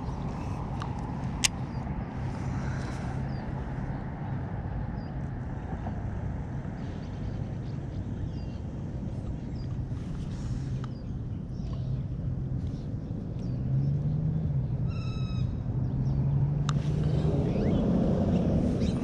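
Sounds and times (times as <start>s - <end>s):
constant low hum: 0.0s - 19.0s
steady low rumble: 0.0s - 19.0s.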